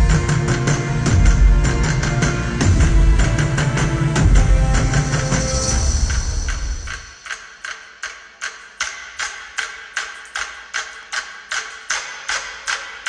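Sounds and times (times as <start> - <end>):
loud festival drumming: 0.0 - 7.3.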